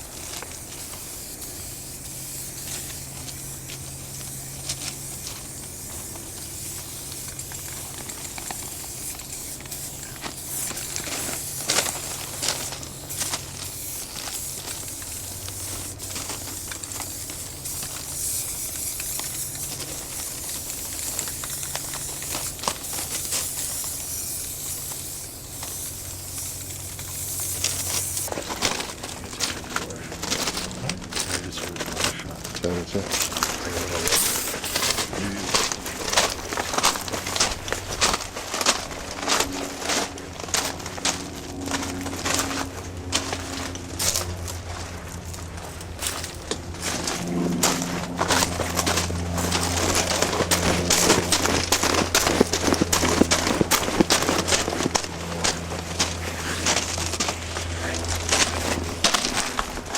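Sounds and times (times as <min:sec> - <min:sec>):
spray cans hissing: 0:00.0 - 0:59.9
low hum: 0:25.6 - 0:59.9.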